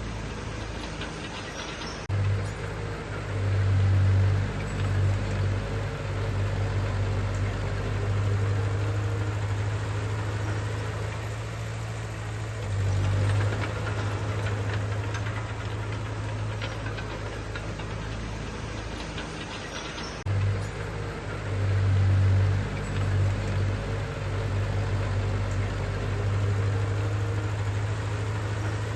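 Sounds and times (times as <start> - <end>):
heavy diesel engine running: 0.0 - 28.9
faint clicks: 12.4 - 21.5.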